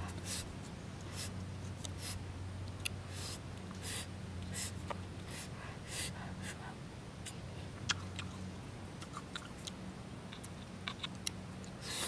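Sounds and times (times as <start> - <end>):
person chewing crisp fruit: 7.3 - 11.8.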